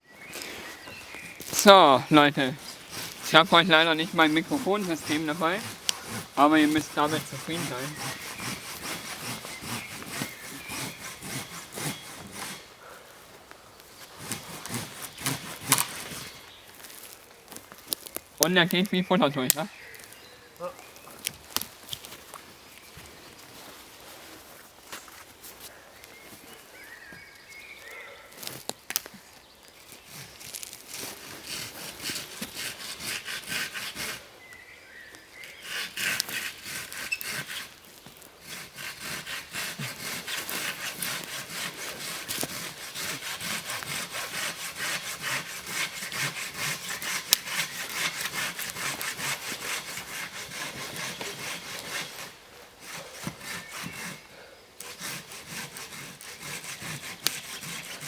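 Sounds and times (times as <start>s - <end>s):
hand saw cutting wood: 0.3s - 12.9s, 14.0s - 17.1s, 17.9s - 20.2s, 29.9s - 34.3s, 35.4s - 58.0s.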